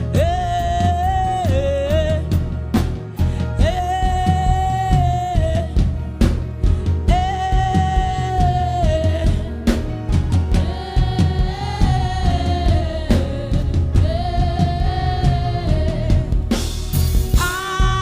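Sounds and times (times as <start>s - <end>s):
drum kit: 0.0s - 18.0s
person singing: 17.4s - 18.0s.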